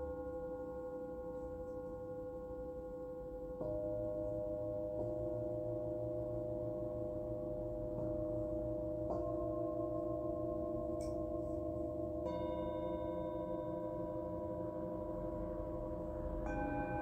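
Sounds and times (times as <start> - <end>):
singing bowl struck: 3.6 - 17.0
singing bowls ringing: 3.6 - 17.0.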